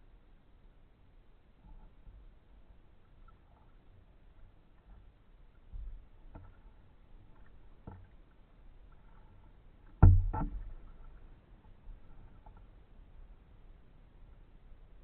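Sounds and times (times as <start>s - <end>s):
paddle knocking on kayak hull: 9.9s - 10.9s.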